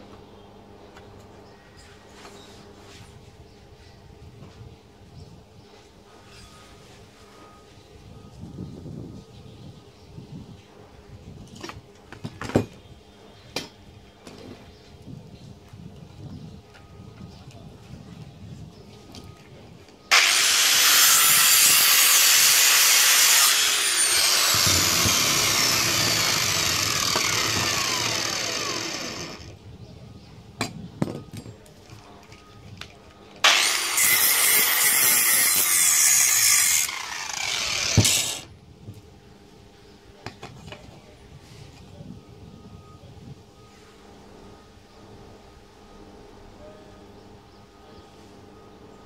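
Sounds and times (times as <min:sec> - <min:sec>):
power tool working metal: 0:20.1 - 0:29.5, 0:33.4 - 0:38.5.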